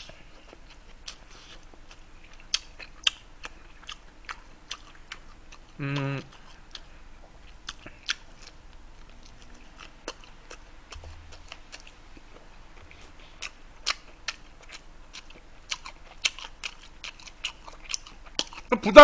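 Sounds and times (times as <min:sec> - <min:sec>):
man chewing: 0:00.0 - 0:18.9.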